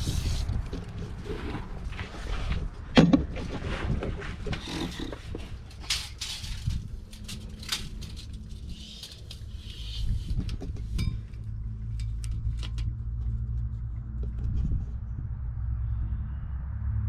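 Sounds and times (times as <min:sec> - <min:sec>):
low steady rumble: 0:00.0 - 0:17.0
metal tools clinking: 0:04.8 - 0:10.3, 0:10.9 - 0:12.9.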